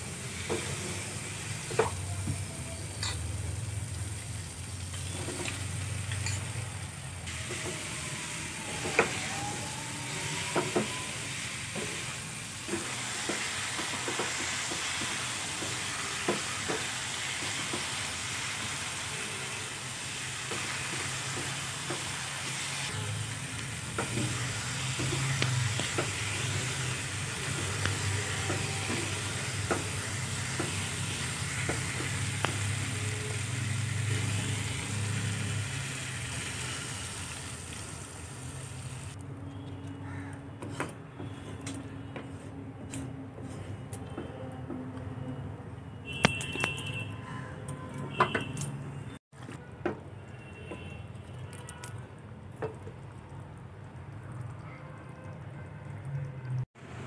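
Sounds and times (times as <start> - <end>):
food sizzling in a pan: 0.0 - 39.2.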